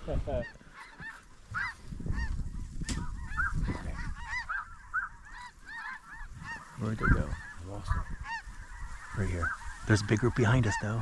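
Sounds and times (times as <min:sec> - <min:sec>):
snow geese honking: 0:00.1 - 0:11.0.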